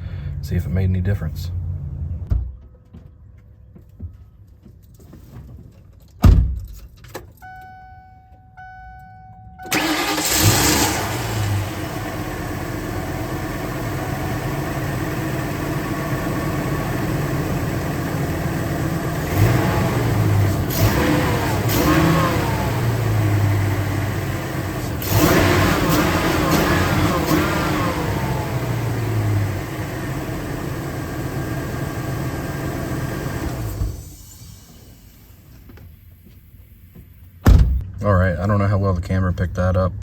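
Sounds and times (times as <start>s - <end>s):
thump: 2.2s - 2.6s, 6.2s - 6.7s, 37.4s - 38.0s
van engine starting and running: 8.6s - 40.0s.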